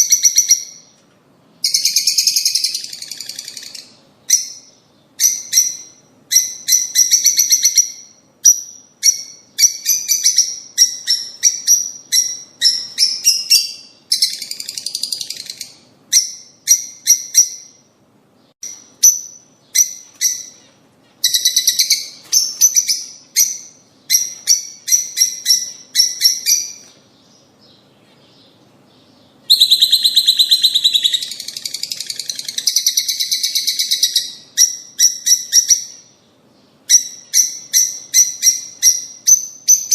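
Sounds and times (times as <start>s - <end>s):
lovebirds shrill chirping: 1.6s - 17.9s, 18.6s - 39.9s.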